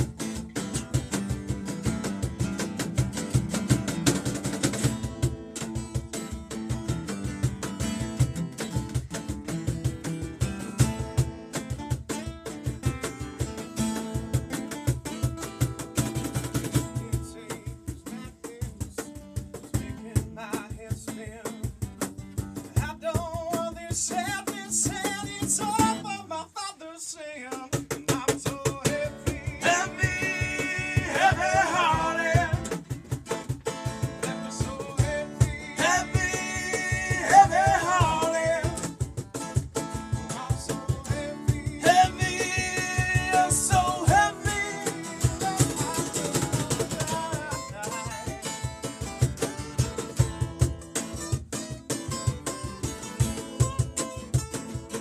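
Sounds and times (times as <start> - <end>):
strummed acoustic guitar: 0.0 - 55.0
person singing: 22.9 - 32.8, 34.2 - 38.9, 40.3 - 48.4.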